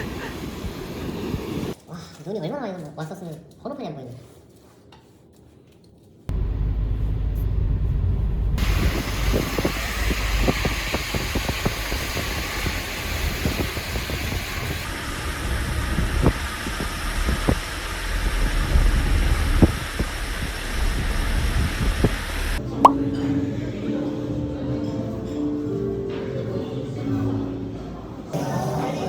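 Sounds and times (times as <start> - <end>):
wind or road noise hiss: 0.0 - 1.8, 8.6 - 22.6
car engine and tyres rumbling: 6.3 - 22.6.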